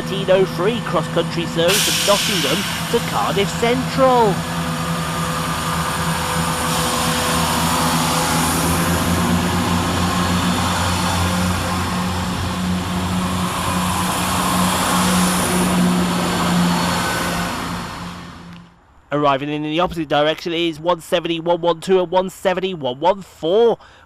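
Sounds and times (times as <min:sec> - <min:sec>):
train diesel engines under power: 0:00.0 - 0:19.1.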